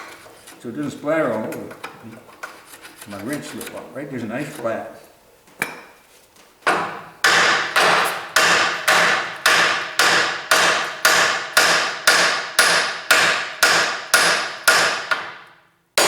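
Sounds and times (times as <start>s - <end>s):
hammer pounding on metal: 6.7s - 15.4s.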